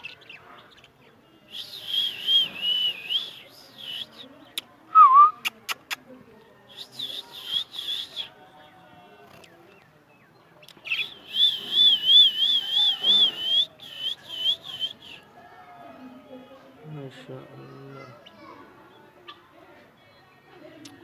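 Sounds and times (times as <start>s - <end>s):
high whistling: 10.9s - 15.2s.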